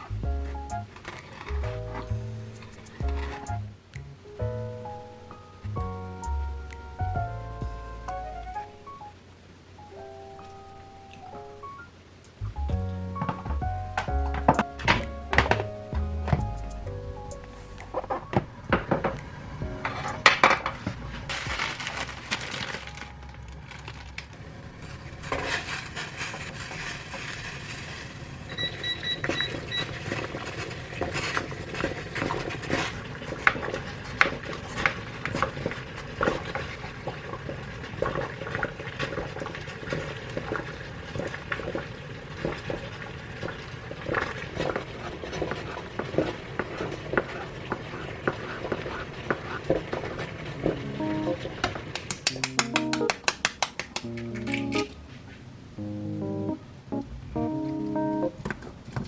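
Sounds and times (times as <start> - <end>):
appliance electronic beeps: 28.5 - 30.1.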